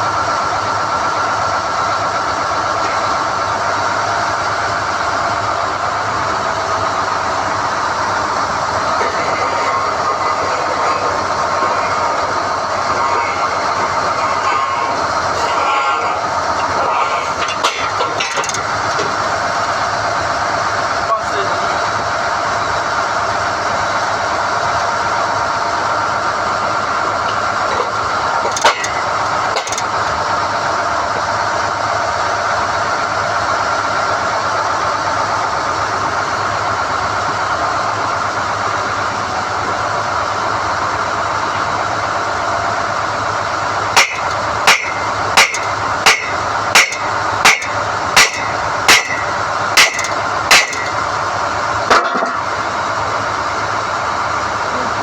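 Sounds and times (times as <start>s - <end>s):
drilling rig running: 0.0s - 55.0s
sharp knocks: 44.0s - 51.0s.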